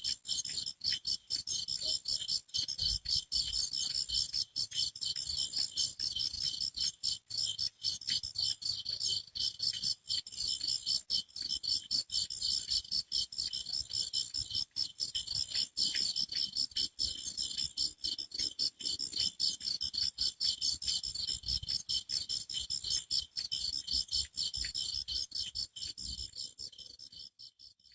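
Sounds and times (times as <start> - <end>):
crickets chirping: 0.0 - 27.9.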